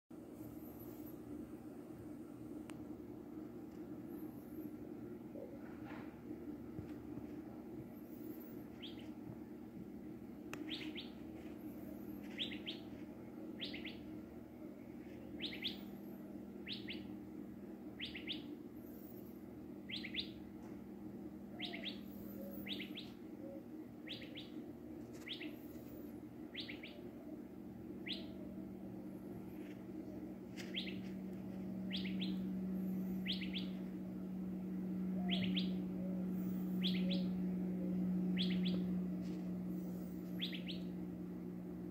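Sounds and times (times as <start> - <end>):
steady low hum: 0.1 - 41.9
bird chirping: 8.1 - 9.2, 10.6 - 11.2, 12.2 - 13.0, 13.6 - 14.1, 15.1 - 17.2, 18.0 - 18.6, 19.9 - 20.4, 21.5 - 25.7, 26.5 - 27.1, 28.0 - 28.5, 30.6 - 31.2, 31.8 - 33.9, 35.1 - 39.0, 39.8 - 41.0.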